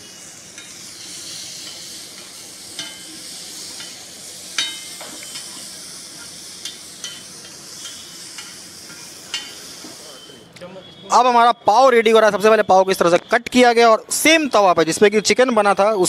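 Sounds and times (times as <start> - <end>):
chicken sizzling on a griddle: 0.0 - 10.4
metal spatula scraping griddle: 0.0 - 10.4.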